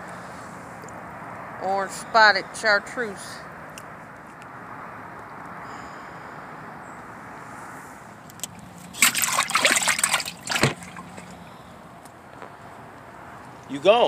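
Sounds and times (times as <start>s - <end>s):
water splashing: 8.5s - 11.7s.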